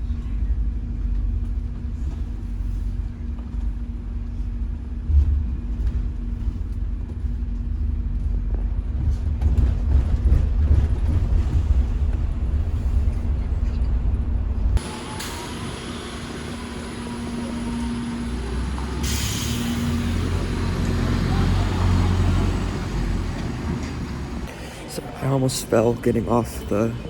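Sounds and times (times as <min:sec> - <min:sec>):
vehicle rumble from inside: 0:00.0 - 0:24.5
steady hum: 0:14.6 - 0:21.4.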